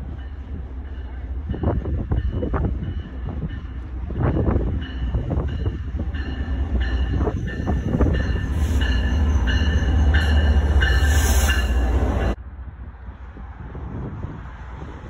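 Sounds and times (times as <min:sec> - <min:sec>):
train rumbling past: 0:00.0 - 0:15.0
train wheel squeal: 0:04.8 - 0:12.4.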